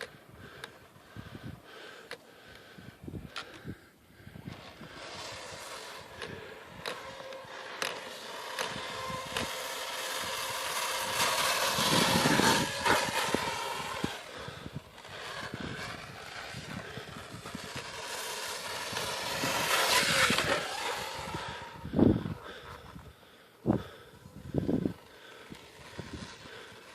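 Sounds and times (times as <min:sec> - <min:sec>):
rc truck motor whining: 0:00.0 - 0:26.9
clicks and scrapes: 0:04.5 - 0:21.8.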